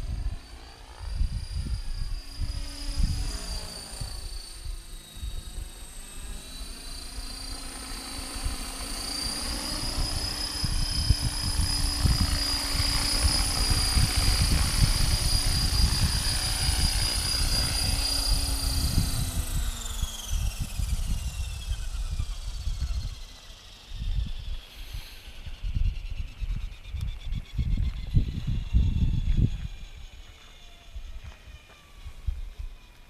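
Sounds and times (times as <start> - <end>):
wind on microphone: 0.0 - 6.0, 8.2 - 30.3
rc helicopter motor whine: 0.0 - 33.0.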